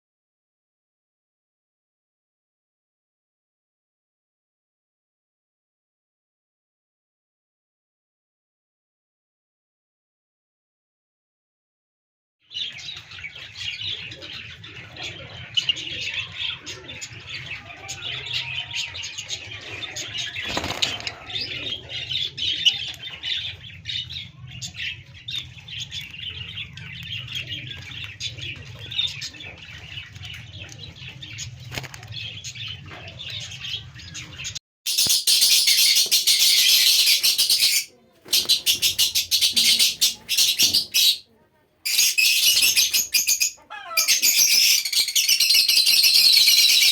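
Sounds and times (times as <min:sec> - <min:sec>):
small birds chirping: 0:12.5 - 0:46.9.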